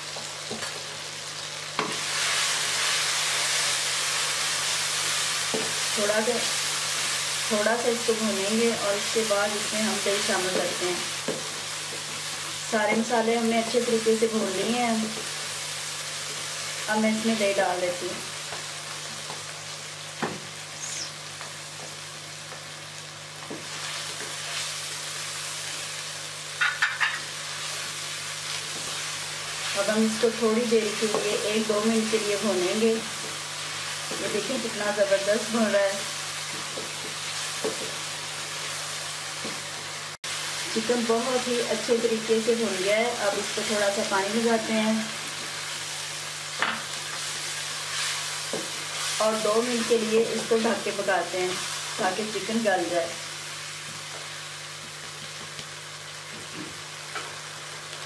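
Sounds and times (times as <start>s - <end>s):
masala sizzling in hot oil: 0.0s - 58.0s
spatula scraping and tapping pan: 26.6s - 27.3s.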